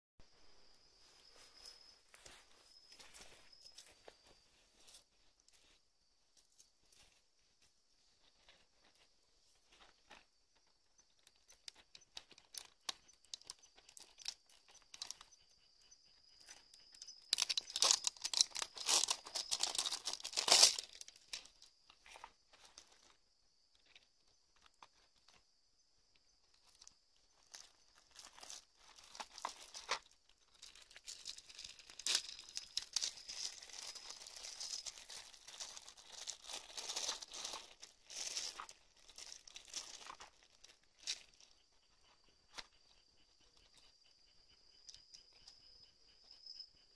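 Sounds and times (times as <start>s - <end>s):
faint steady high tone: 0.2s - 10.2s, 30.9s - 46.9s
material crinkling and tearing: 17.3s - 21.5s, 28.1s - 41.2s.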